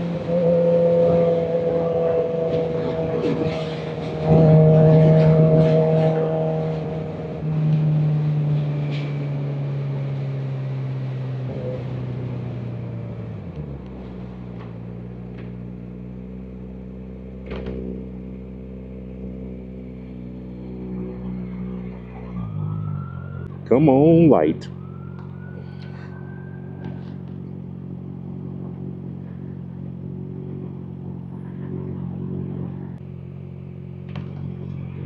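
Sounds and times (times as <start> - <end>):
motorcycle engine slowing to idle: 12.6 - 35.0.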